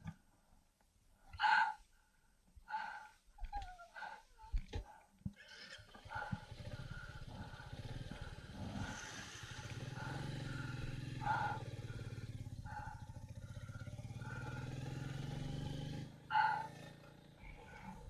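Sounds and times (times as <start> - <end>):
motorcycle engine running: 5.8 - 18.0.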